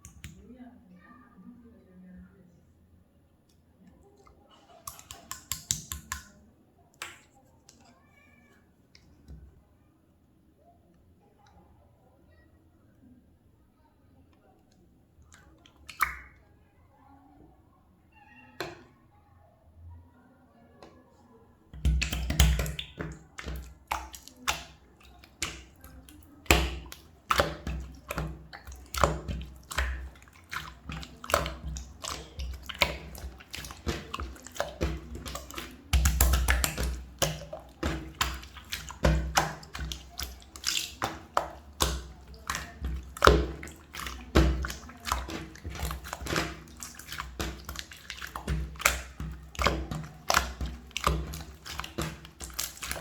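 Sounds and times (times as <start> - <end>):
slime squished by hand: 4.6 - 6.4, 15.4 - 16.4, 21.8 - 53.0.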